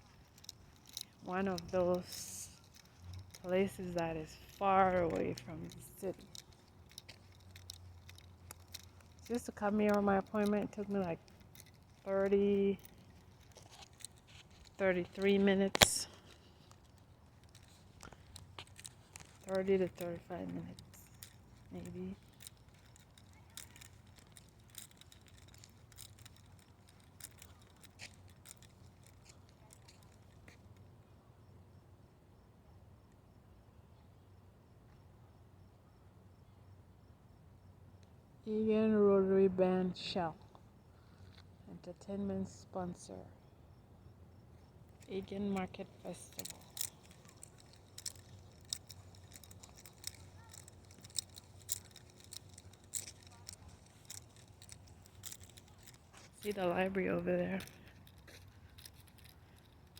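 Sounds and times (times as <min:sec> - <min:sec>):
faint footsteps on path: 0:00.0 - 0:30.9, 0:44.6 - 0:59.9
faint clicks and ticks: 0:00.0 - 0:31.0, 0:40.0 - 0:43.2, 0:44.3 - 0:59.9
insect chirping: 0:00.0 - 0:38.2, 0:40.4 - 0:59.9.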